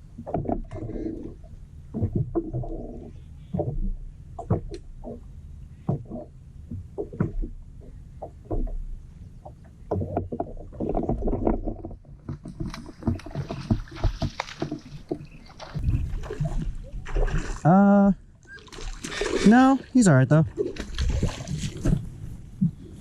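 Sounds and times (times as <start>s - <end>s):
knocks against hull: 0.2s - 1.2s, 1.9s - 5.2s, 5.8s - 17.5s
low rumble: 15.6s - 17.6s.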